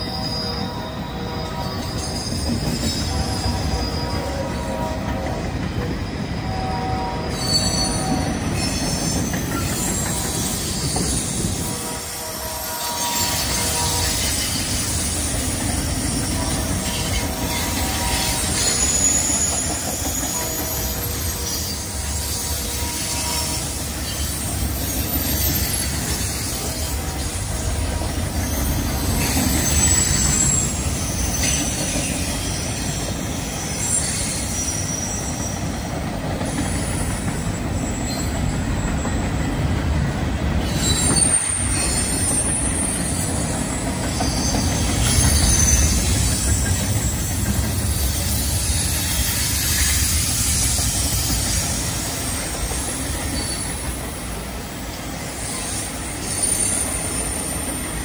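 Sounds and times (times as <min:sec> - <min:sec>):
steel wheels rumbling on rail: 0:00.0 - 0:58.0
wheel flange squeal: 0:07.2 - 0:11.6, 0:16.3 - 0:27.2, 0:28.4 - 0:35.8, 0:36.4 - 0:39.3, 0:40.6 - 0:43.4, 0:44.0 - 0:52.6, 0:53.2 - 0:53.9, 0:55.4 - 0:57.7.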